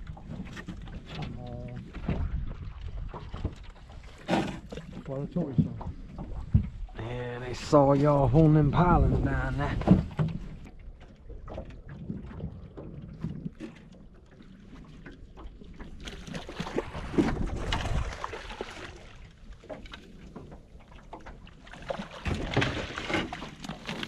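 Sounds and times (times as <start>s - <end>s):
water noise: 0.0s - 24.0s
wind: 0.0s - 24.0s.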